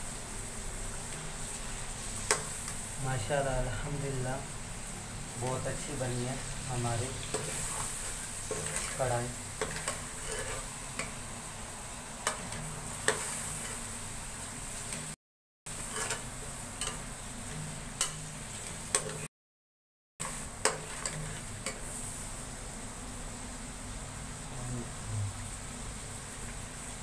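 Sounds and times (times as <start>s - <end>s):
food sizzling in oil: 0.0s - 19.3s, 20.2s - 27.0s.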